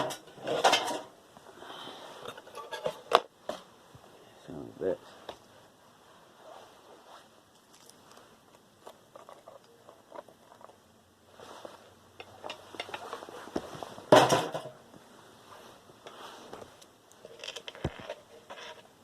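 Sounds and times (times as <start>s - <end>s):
metal parts clattering: 2.2s - 3.1s.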